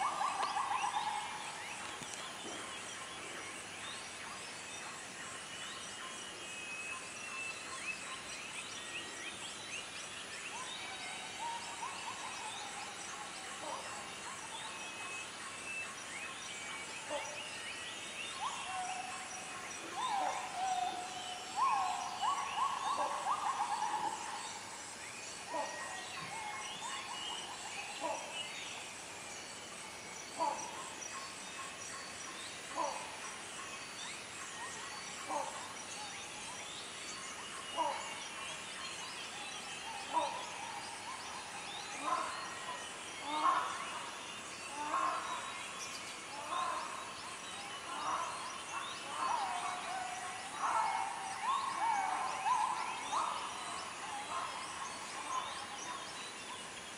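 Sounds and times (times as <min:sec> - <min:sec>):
birds chirping and calling: 0:19.8 - 0:24.8.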